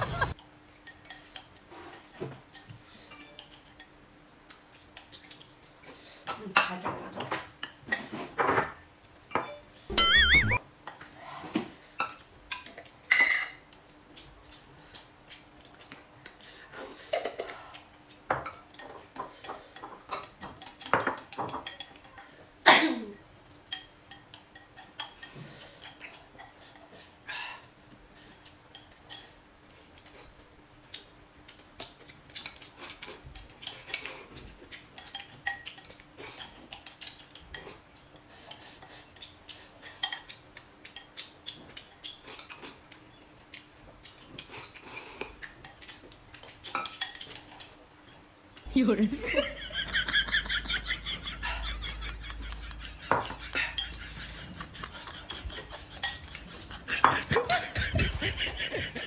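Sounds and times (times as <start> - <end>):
utensils clinking against dishes: 12.0 - 13.9, 17.1 - 22.4, 32.3 - 42.8, 45.4 - 48.2, 49.2 - 59.0.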